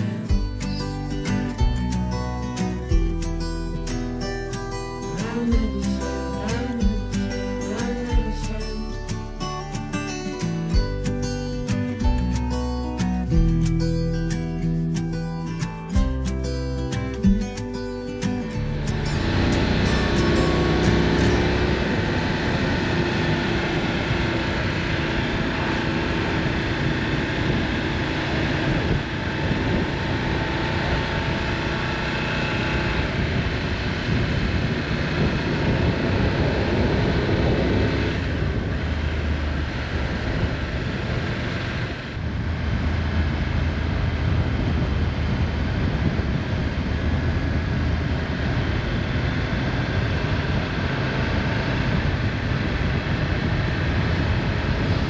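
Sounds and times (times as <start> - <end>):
motorcycle engine running: 0.0 - 55.0
wind rush on microphone: 17.0 - 55.0.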